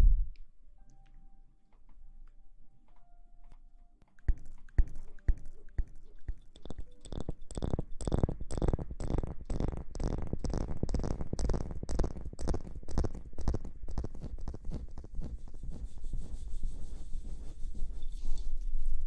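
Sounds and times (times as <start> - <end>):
light tapping sounds: 0.4 - 15.8
scratchy rubbing strokes: 4.3 - 19.0.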